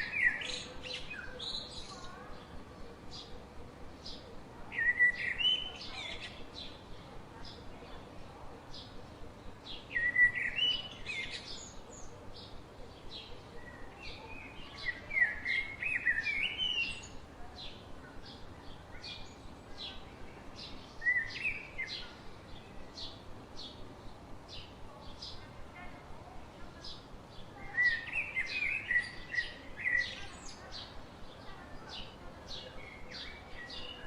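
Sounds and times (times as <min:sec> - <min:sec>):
songbirds chirping: 0:00.0 - 0:34.0
bird warbling song: 0:27.6 - 0:34.0.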